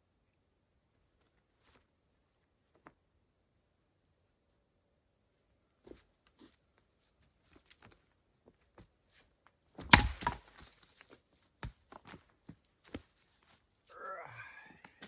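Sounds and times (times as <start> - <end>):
axe knocking on log: 9.8 - 10.5
wood cracking and splintering: 9.8 - 10.7.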